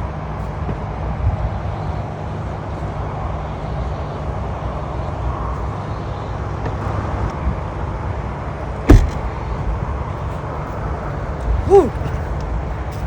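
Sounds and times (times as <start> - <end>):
car road and tyre rumble: 0.0 - 13.0
sharp knock: 8.9 - 9.2.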